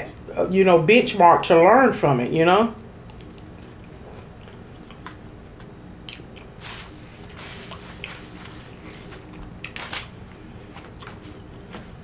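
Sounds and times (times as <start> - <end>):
person chewing with wet smacks: 3.0 - 9.8.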